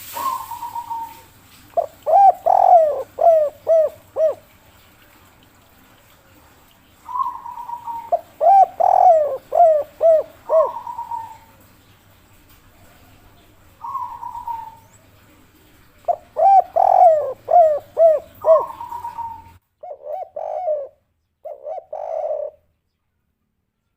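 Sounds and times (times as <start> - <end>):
dove purring trill: 0.0 - 4.5, 7.0 - 11.6, 13.8 - 15.0, 15.6 - 22.6
dove cooing: 0.0 - 4.6, 6.0 - 22.6.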